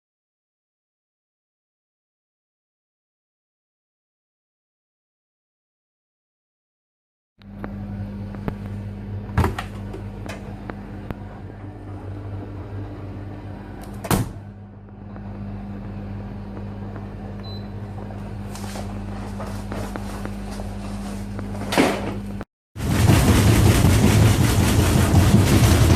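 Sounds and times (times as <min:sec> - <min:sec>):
washing machine motor hum: 0:07.4 - 0:25.9.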